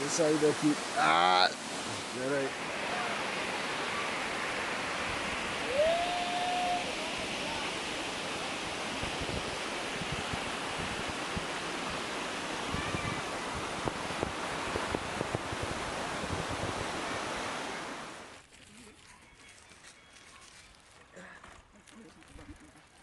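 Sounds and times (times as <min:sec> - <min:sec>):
waterfall rushing: 0:00.0 - 0:18.4
wind buffeting microphone: 0:08.1 - 0:17.5.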